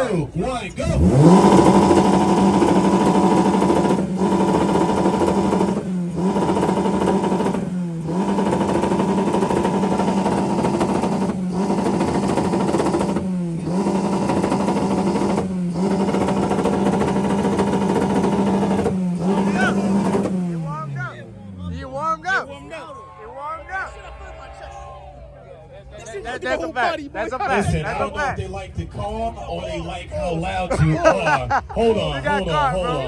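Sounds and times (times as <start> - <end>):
car engine revving hard: 0.8 - 22.2.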